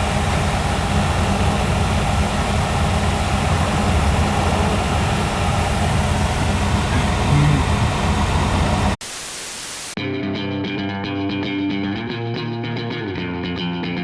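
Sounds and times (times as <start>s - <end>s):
car engine rumble: 0.0s - 9.0s
road noise: 0.0s - 9.2s.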